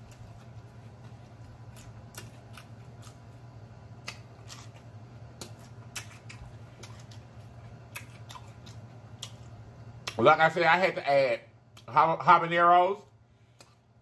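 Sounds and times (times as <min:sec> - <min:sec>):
chewing crunchy fried food: 0:00.0 - 0:10.3
low steady hum: 0:00.0 - 0:14.0.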